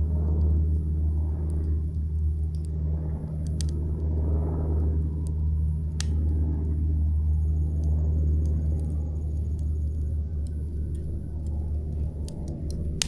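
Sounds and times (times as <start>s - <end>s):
campfire crackling: 0.0s - 13.0s
low rumble: 0.0s - 13.0s
burning wood popping: 0.4s - 13.0s.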